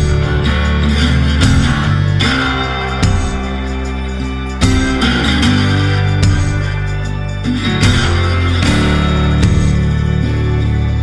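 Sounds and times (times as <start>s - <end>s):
plucked guitar notes: 0.0s - 11.0s.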